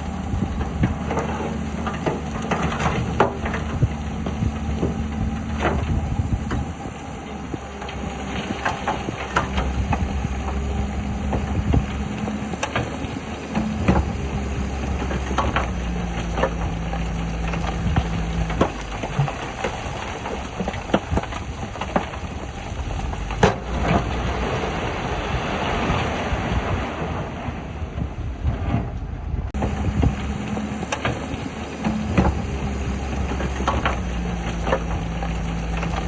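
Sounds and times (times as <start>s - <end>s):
heavy machinery diesel engines: 0.0s - 36.0s.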